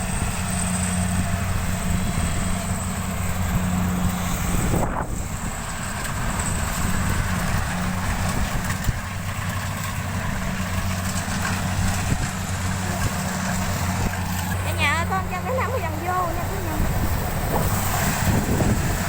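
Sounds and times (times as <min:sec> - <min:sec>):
combine harvester engine hum: 0:00.0 - 0:19.0.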